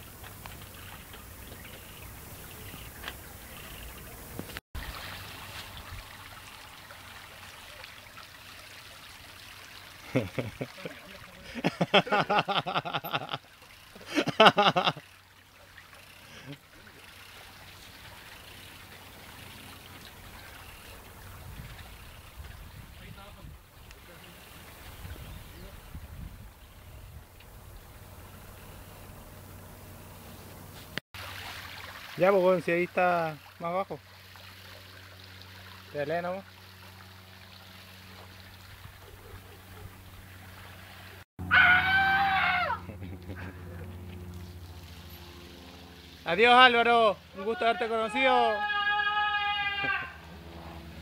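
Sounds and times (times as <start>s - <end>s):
water rushing along a channel: 0.0s - 26.2s, 31.2s - 41.2s
high-pitched cry sliding down: 41.5s - 42.8s, 48.5s - 50.2s.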